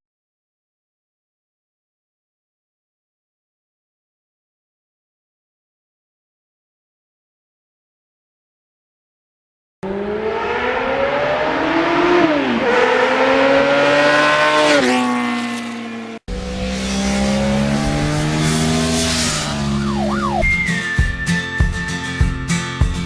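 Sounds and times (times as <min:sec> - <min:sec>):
engine accelerating through gears: 0:09.8 - 0:20.5.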